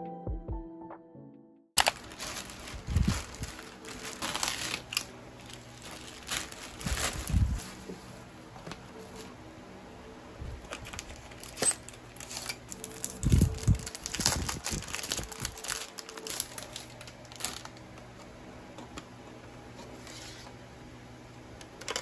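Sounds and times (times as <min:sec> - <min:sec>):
plastic packaging crinkling: 0:01.8 - 0:08.0, 0:10.6 - 0:18.0.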